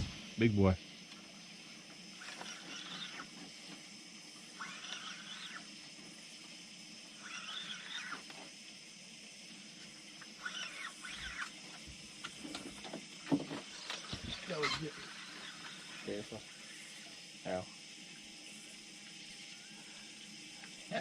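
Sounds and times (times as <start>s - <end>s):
high animal drone: 0.0s - 21.0s
raspy animal call: 2.2s - 3.3s, 4.6s - 5.7s, 7.2s - 8.2s, 10.4s - 11.5s.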